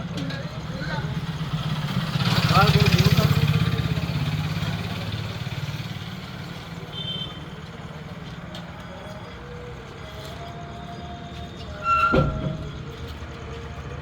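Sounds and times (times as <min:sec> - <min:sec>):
truck engine running: 0:00.0 - 0:06.8.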